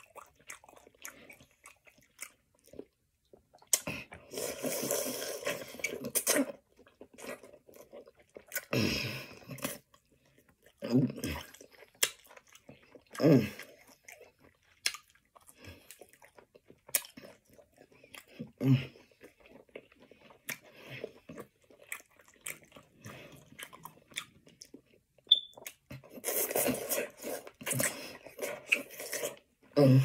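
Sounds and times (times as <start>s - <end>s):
person chewing and biting food: 0.0s - 29.8s.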